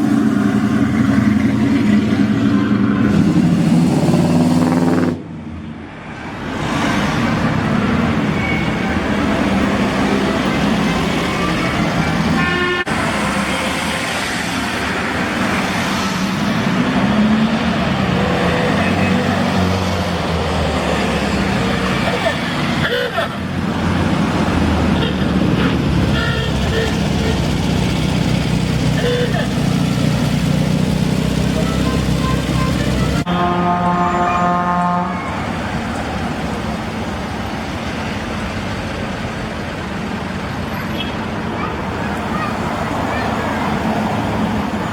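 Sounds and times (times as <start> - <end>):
car engines in traffic: 0.0 - 44.9
tyres on road: 0.0 - 44.9
car horn toot: 12.4 - 12.9, 26.1 - 27.5, 32.2 - 35.4.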